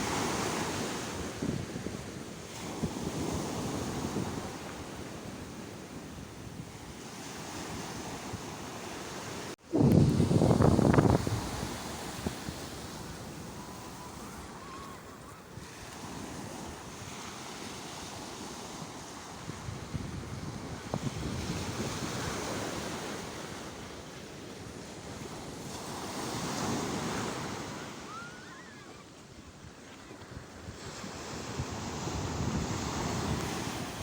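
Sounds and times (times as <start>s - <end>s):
sea waves surging: 7.0s - 19.6s.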